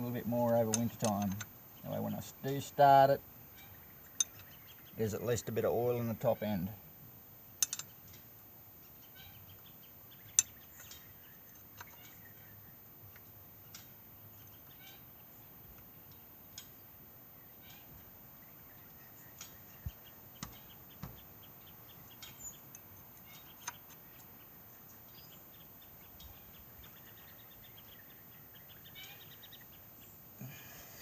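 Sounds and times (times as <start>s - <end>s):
birds chirping: 0.0s - 31.0s
sharp knocks and clicks: 7.6s - 7.9s.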